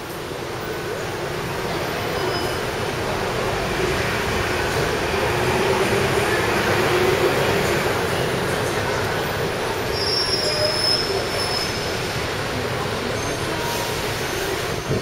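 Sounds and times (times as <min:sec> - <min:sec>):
train wheels rumbling on rail: 0:00.0 - 0:15.0
high wheel squeal: 0:01.8 - 0:02.8, 0:09.4 - 0:12.3, 0:13.0 - 0:15.0.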